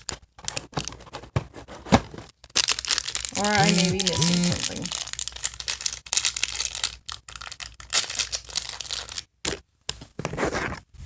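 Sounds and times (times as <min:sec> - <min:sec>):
plastic wrappers crackling: 0:02.6 - 0:09.3.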